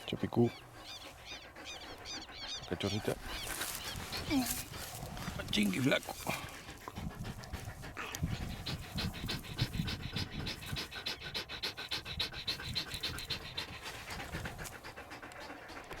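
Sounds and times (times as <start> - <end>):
dog panting fast: 0.0 - 16.0.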